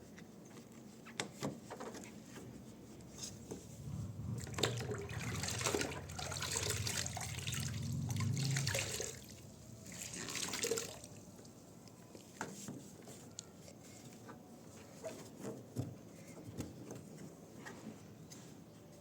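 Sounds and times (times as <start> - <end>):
water running and splashing: 3.8 - 11.3.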